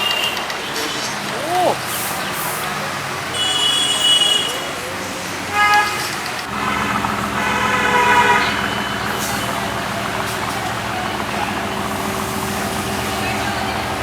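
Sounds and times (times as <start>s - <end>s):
engine hum: 4.8s - 14.0s
car horn honking: 7.4s - 8.7s.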